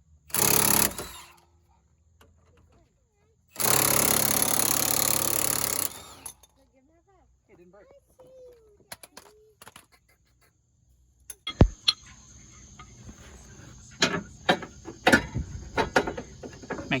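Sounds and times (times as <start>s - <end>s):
tools clanking on car parts: 11.3s - 12.1s, 12.8s - 17.0s.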